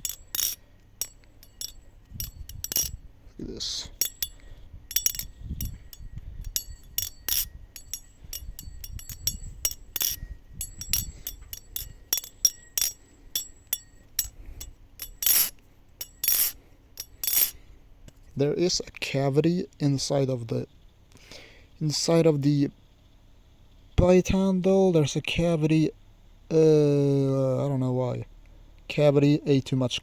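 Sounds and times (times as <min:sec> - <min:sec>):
butterfly knife metallic clicks: 0:00.0 - 0:03.0, 0:04.0 - 0:17.6.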